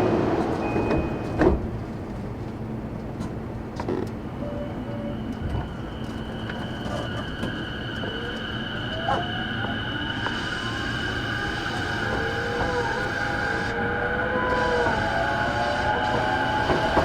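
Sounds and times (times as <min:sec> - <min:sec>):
train running noise: 0:00.0 - 0:17.0
rising electric motor whine: 0:05.3 - 0:17.0.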